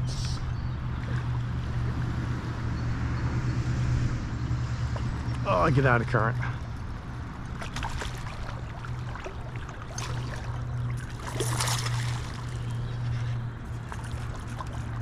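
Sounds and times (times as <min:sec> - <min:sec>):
water splashes: 0:00.0 - 0:03.0, 0:04.6 - 0:15.0
creek water rushing: 0:05.4 - 0:15.0.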